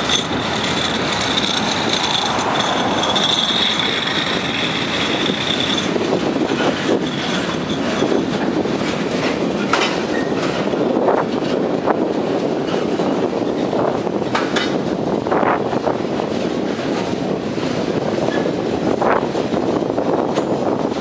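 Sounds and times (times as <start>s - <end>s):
high-pitched wheel squeal: 0.0s - 8.2s
wheel clacks and knocks: 0.0s - 15.0s
wheels rumbling on rail: 0.0s - 21.0s.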